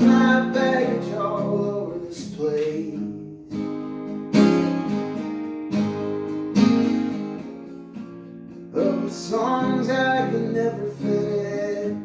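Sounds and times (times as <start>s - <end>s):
person singing: 0.0s - 3.5s, 8.8s - 12.0s
guitar strumming chords: 0.0s - 12.0s.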